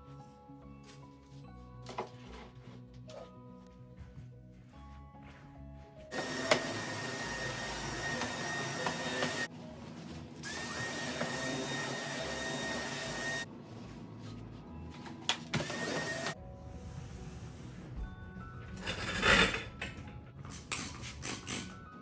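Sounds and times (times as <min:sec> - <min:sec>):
faint background music: 0:00.0 - 0:06.2, 0:07.0 - 0:22.0
small motor high whine: 0:06.1 - 0:09.5, 0:10.4 - 0:13.5, 0:15.6 - 0:16.4.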